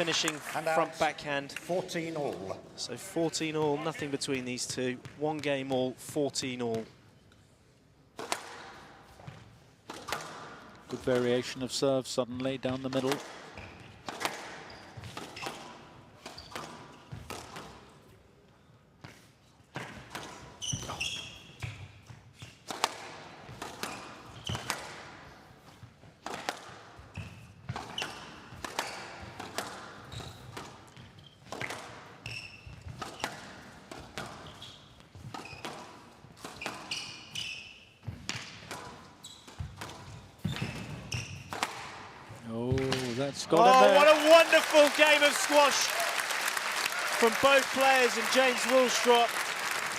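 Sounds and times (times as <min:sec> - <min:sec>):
squash ball cracking off rackets: 0:09.9 - 0:11.0, 0:39.6 - 0:42.0
shoe squeaks: 0:14.6 - 0:17.2, 0:20.6 - 0:22.6, 0:23.9 - 0:24.7, 0:30.0 - 0:31.5, 0:32.2 - 0:33.4, 0:34.4 - 0:38.1, 0:39.2 - 0:41.6.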